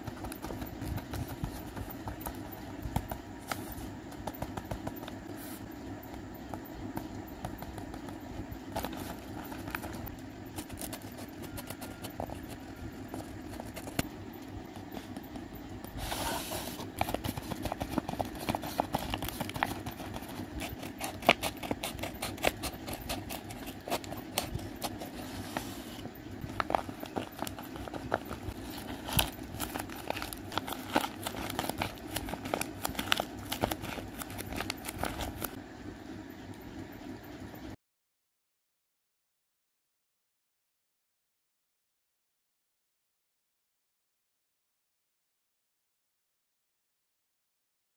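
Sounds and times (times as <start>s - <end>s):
paper and tape crinkling: 8.8s - 14.0s, 16.0s - 35.6s.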